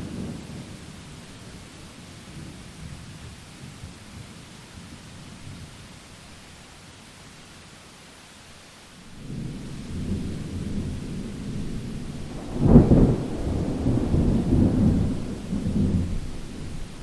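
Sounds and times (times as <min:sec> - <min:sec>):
steady rain: 0:00.0 - 0:17.0
thunder rumbling and cracking: 0:09.2 - 0:17.0.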